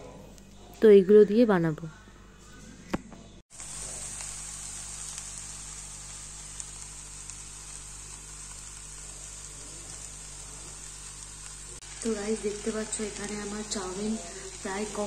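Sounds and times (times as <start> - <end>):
noodles sizzling in a pan: 3.5 - 15.0.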